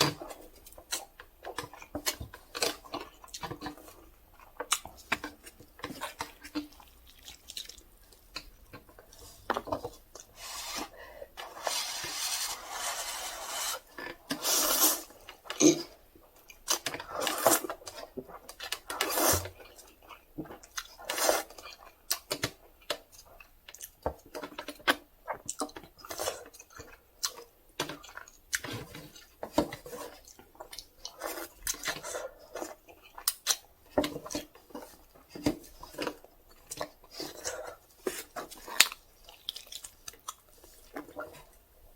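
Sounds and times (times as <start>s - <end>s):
person slurping noodles: 10.3s - 15.8s, 18.9s - 19.5s.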